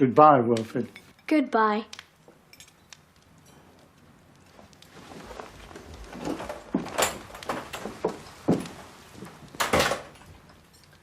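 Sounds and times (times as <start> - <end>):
door opening and closing: 6.2 - 8.7, 9.5 - 10.3.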